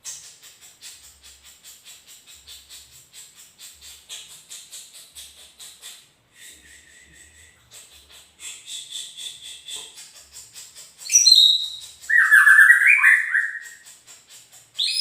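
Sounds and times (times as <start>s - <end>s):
bird ticking call and trill: 9.4s - 15.0s.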